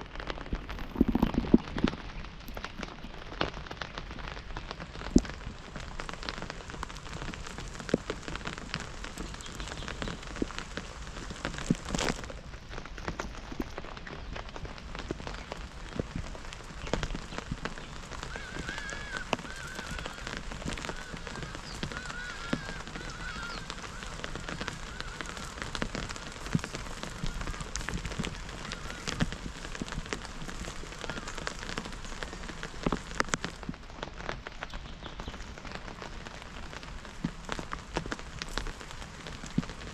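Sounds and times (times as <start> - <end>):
rain drops ticking: 0.0 - 39.9
animal high calls: 18.2 - 29.6.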